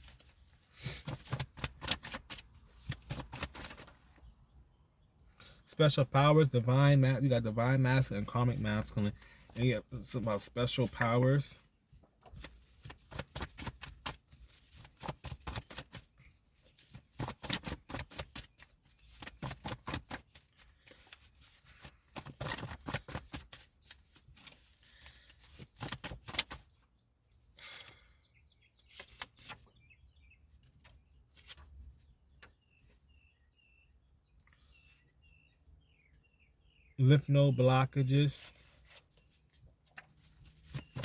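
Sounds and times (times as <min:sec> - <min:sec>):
faint bird chirps: 0:31.8 - 0:37.6
deck of cards shuffling: 0:40.0 - 0:41.0.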